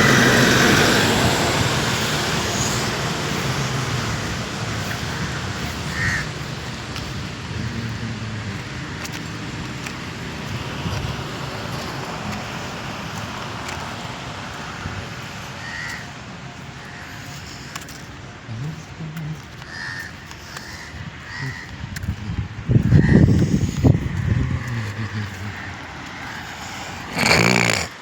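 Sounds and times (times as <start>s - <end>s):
steady background noise: 0.0s - 28.0s
bird calls: 2.4s - 7.8s, 19.4s - 21.8s.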